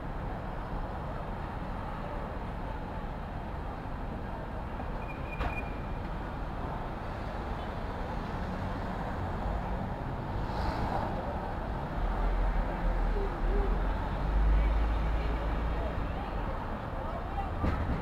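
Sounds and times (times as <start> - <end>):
rumble of passing vehicles: 0.0 - 18.0
sharp click with squeak: 5.0 - 5.8.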